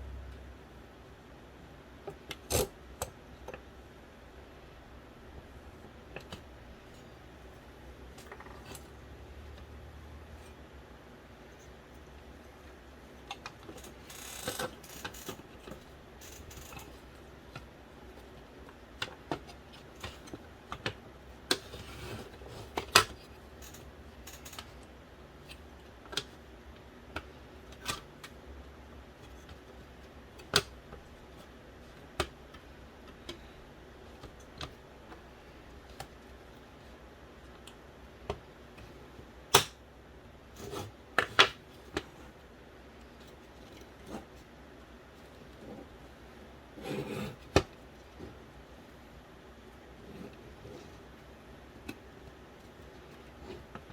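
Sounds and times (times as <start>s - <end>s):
low steady hum: 0.0s - 53.9s
small parts clicking and tapping: 13.2s - 21.8s, 22.6s - 28.4s.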